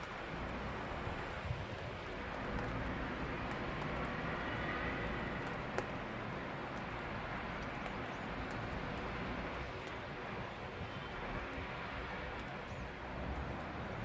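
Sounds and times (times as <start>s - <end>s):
faint ticks: 0.0s - 10.4s
rain falling on a street: 0.0s - 14.0s.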